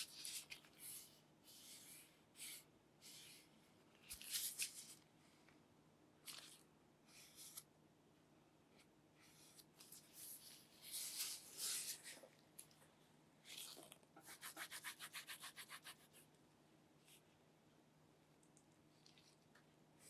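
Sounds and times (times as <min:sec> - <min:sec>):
rubbing and scraping strokes: 0:14.2 - 0:16.2.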